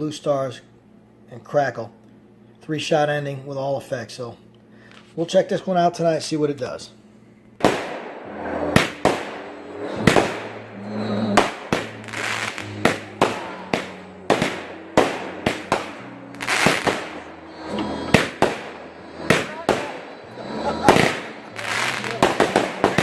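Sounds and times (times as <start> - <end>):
firework hissing and crackling: 7.6 - 23.0
firework shots: 7.6 - 23.0.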